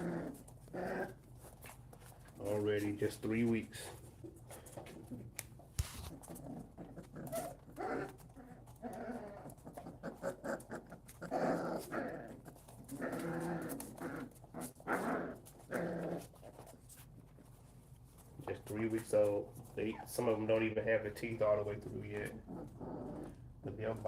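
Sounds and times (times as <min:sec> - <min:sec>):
puppies whining and yelping: 0:06.1 - 0:16.3.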